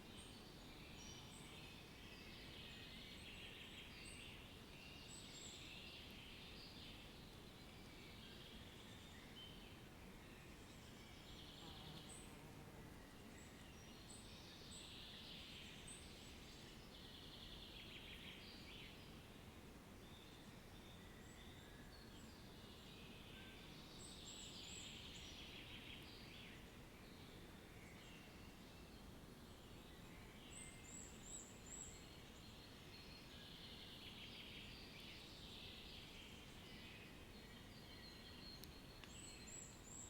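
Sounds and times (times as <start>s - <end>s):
low steady background noise: 0.0s - 40.0s.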